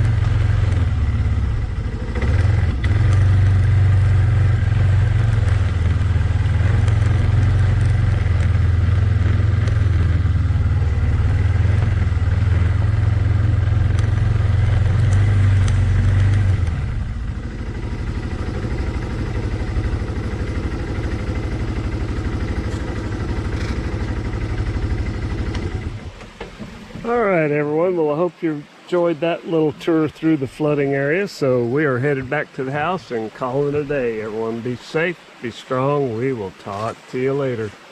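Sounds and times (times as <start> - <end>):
atv engine running: 0.0 - 27.5.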